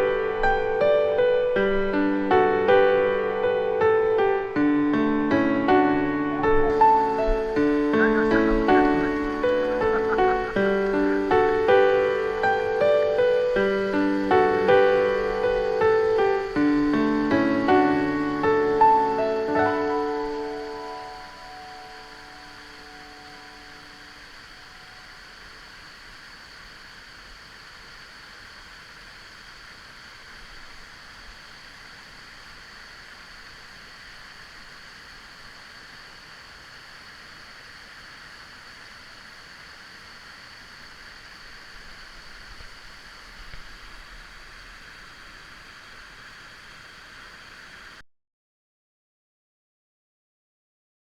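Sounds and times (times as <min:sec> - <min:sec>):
stream water rushing: 0:00.0 - 0:48.0.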